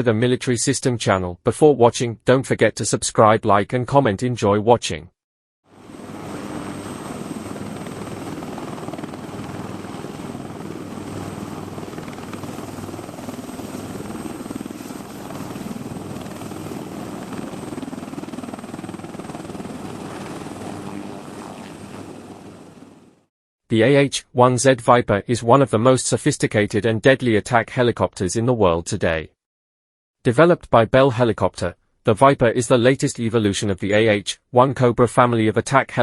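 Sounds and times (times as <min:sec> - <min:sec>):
helicopter engine and rotor: 0:05.7 - 0:23.3.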